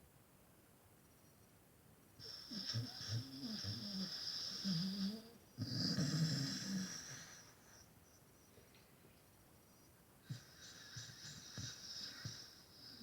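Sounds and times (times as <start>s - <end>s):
dog snoring: 2.2s - 7.7s, 10.2s - 13.0s.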